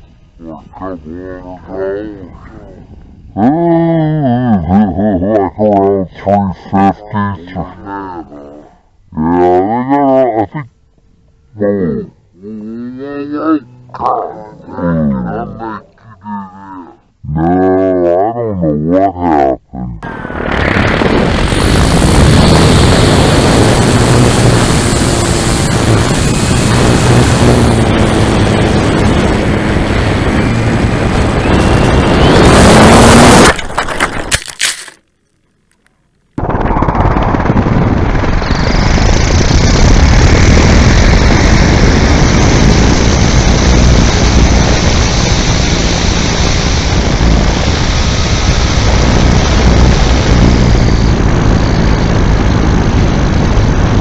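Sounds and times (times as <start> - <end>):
wind rush: 20.0 - 33.6, 36.4 - 54.0
electric motor noise: 20.0 - 35.0, 36.4 - 54.0.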